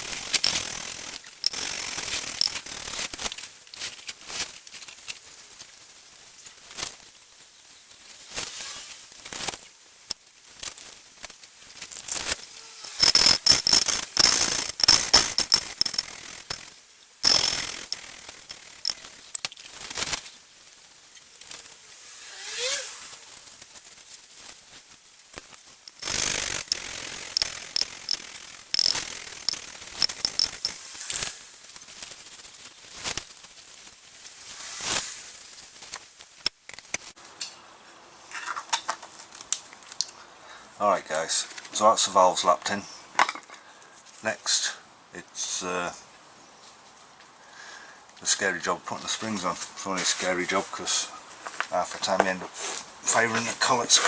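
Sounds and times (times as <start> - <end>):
valve lapping grinding rasp: 0.0 - 2.7, 12.8 - 16.6, 17.2 - 19.0, 25.9 - 30.8.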